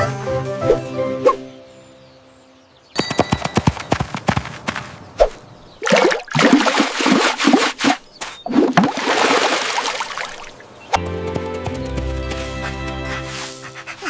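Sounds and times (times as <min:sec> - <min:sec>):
water splashing and sloshing: 0:05.2 - 0:10.8.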